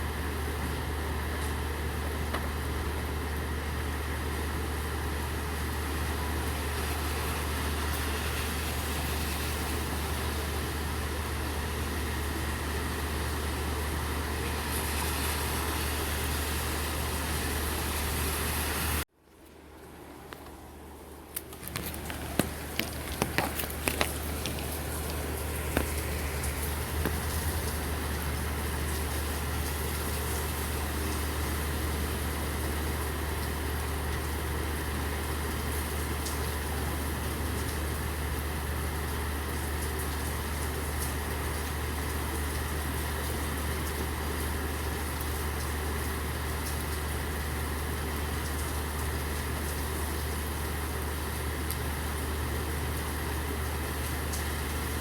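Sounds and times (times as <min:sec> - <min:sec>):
vehicle engine idling: 0:20.2 - 0:55.0
falling rain hiss: 0:21.8 - 0:55.0.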